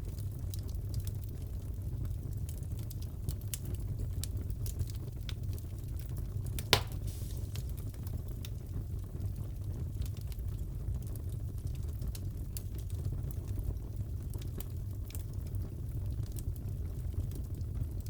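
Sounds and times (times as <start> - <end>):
fireplace crackling: 5.9 - 8.7
loud fire pop: 6.6 - 7.8.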